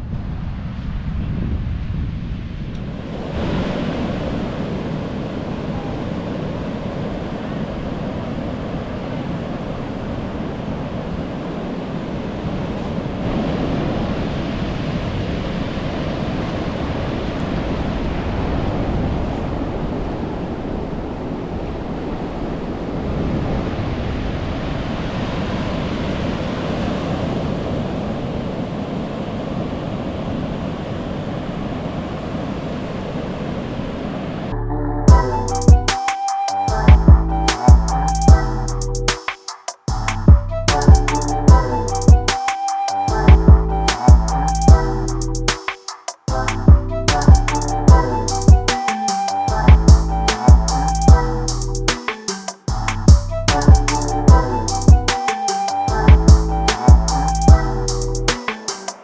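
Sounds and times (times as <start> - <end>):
wind buffeting microphone: 0.0 - 24.9
ocean surf breaking on beach: 0.1 - 34.5.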